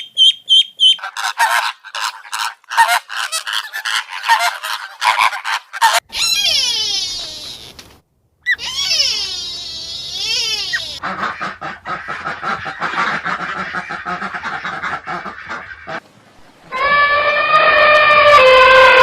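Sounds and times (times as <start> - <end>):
rapid duck quacking: 0.8 - 6.1, 10.3 - 16.0
animal calls sweeping up and down: 1.0 - 7.8, 8.5 - 11.0.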